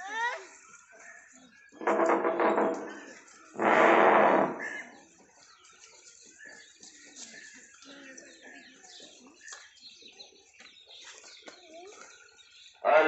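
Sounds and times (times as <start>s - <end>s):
small birds chirping: 0.0s - 3.7s, 4.5s - 13.0s.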